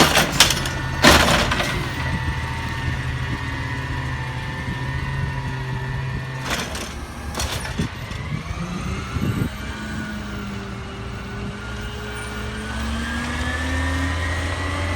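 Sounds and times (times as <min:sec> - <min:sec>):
diesel truck engine running: 0:00.0 - 0:14.9.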